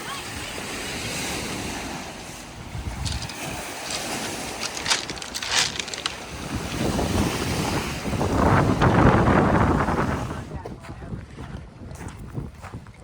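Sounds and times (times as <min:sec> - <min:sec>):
boats: 0:00.0 - 0:13.0
water: 0:00.0 - 0:13.0
wind gusting on microphone: 0:00.3 - 0:13.0
short crackles: 0:03.0 - 0:07.0.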